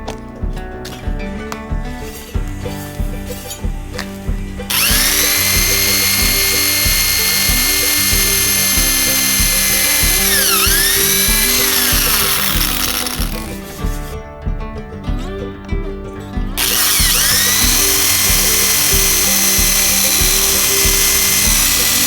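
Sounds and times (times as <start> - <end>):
background music with beat: 0.0 - 22.0
power tool high whine: 4.7 - 13.6, 16.6 - 22.0.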